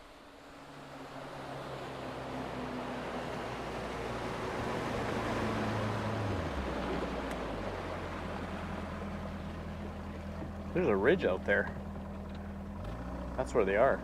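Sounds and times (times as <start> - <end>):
rush of water and wind: 0.0 - 11.6
outboard motor running: 0.2 - 14.0.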